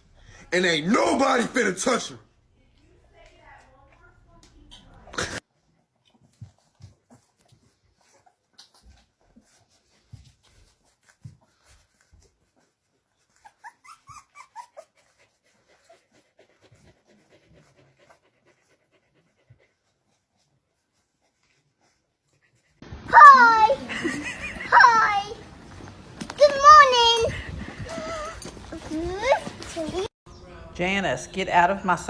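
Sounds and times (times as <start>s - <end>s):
dog whimpering: 13.3s - 15.2s, 27.2s - 29.8s
dog whining: 13.4s - 15.0s, 26.4s - 30.1s.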